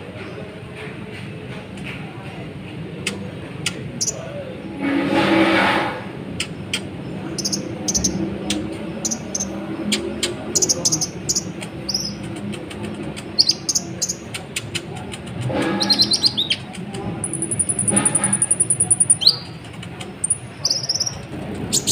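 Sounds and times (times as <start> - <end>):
bird chirping and trilling: 6.4 - 8.4, 9.0 - 12.3, 13.3 - 14.3, 15.8 - 19.6, 20.2 - 21.9.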